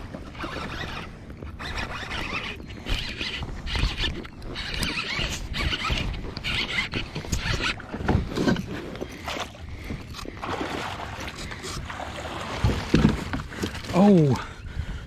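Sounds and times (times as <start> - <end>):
knocks and clatter on kayak: 0.0 - 14.3
water splashing: 6.5 - 14.1.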